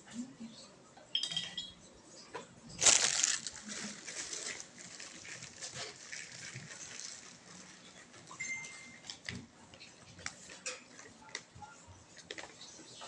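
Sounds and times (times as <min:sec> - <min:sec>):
loud rustling: 0:02.8 - 0:08.2.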